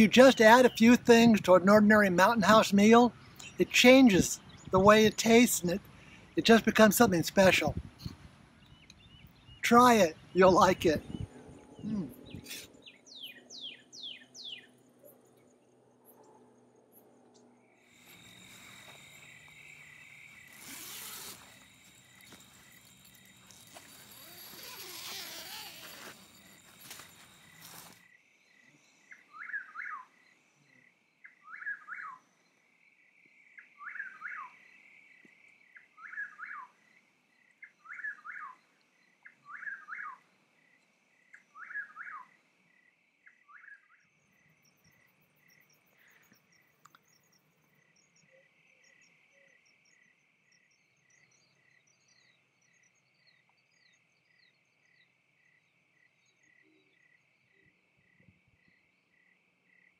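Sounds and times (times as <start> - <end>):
insect chorus: 16.0 - 59.9.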